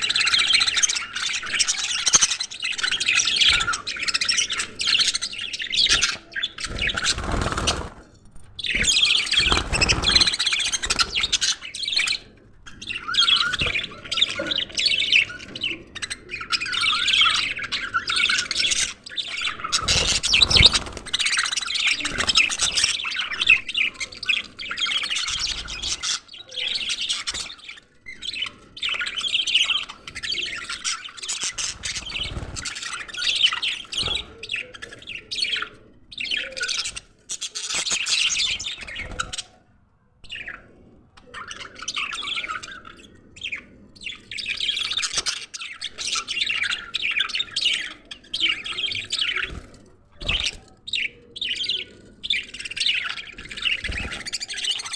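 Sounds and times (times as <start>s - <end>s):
budgerigars chattering and chirping: 0.0s - 39.6s, 40.3s - 54.9s.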